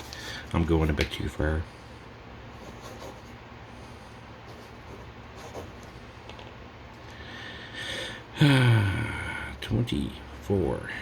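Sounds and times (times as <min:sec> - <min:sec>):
drawing tool scratching on paper: 0:02.6 - 0:03.4, 0:04.5 - 0:05.8.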